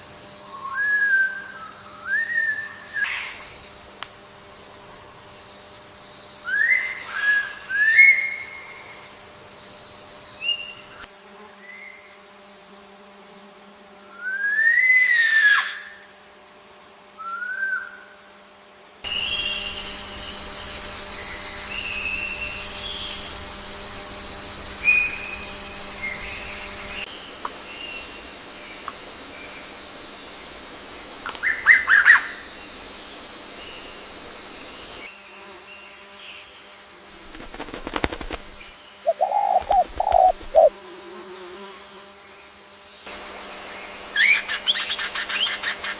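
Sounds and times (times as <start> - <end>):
high insect drone: 0.0 - 45.9
birds whistling: 39.1 - 40.7.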